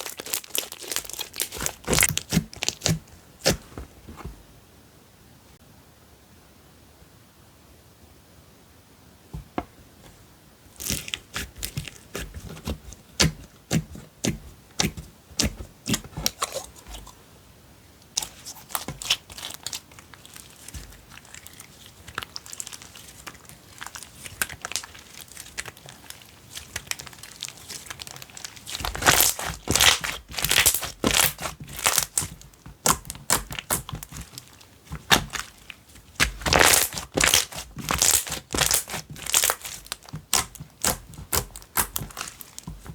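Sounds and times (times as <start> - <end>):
sticky clicks and crackles: 0.0 - 3.0, 18.2 - 42.9
slime squished by hand: 0.0 - 3.8, 18.2 - 42.9.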